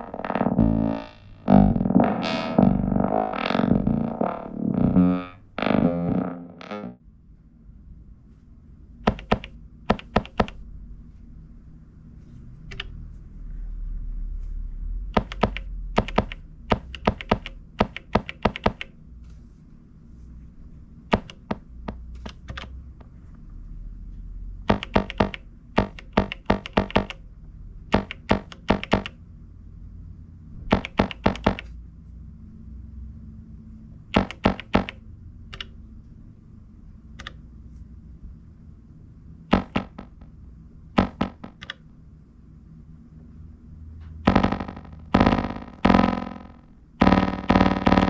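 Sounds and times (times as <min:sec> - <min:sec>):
faint low hum: 0:00.0 - 0:48.0
plastic buttons clicking: 0:09.1 - 0:10.6, 0:15.2 - 0:18.9, 0:21.1 - 0:22.8, 0:24.7 - 0:27.2, 0:28.0 - 0:29.2, 0:30.7 - 0:31.7, 0:34.2 - 0:35.0.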